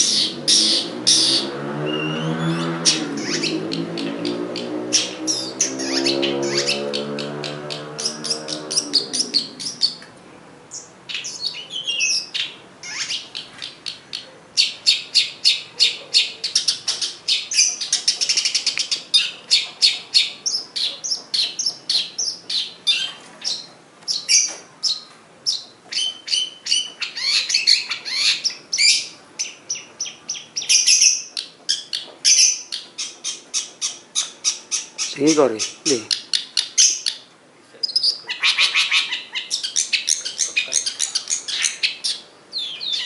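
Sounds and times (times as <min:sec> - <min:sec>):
bird chattering song: 0:00.0 - 0:10.1, 0:10.7 - 0:43.0.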